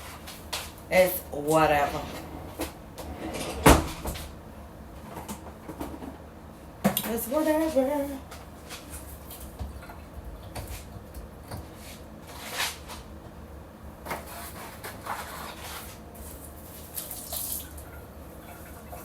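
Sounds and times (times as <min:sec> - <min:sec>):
low steady hum: 0:00.0 - 0:19.0
scrapes and rustles: 0:11.6 - 0:13.1, 0:14.2 - 0:16.9.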